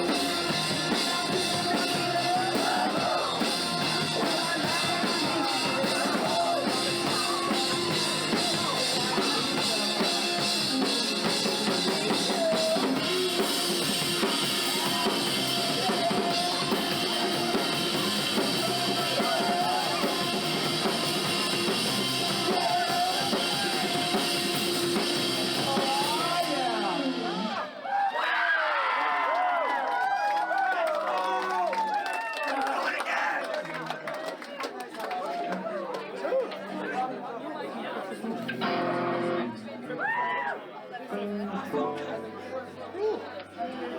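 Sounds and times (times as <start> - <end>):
bass drum beat: 0.0 - 27.0
rock band playing live: 0.0 - 27.6, 38.4 - 39.6, 41.2 - 43.6.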